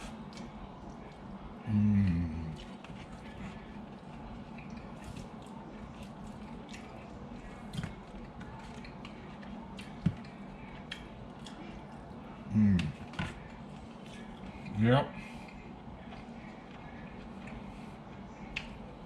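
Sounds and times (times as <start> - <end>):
person chewing wetly: 0.0 - 1.3, 2.0 - 14.7
steady low hum: 0.0 - 19.0.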